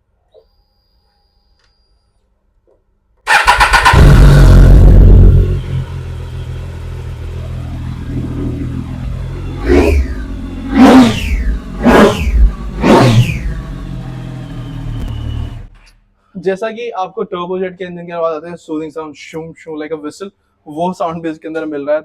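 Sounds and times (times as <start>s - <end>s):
motorcycle engine starting and revving: 3.3s - 15.8s.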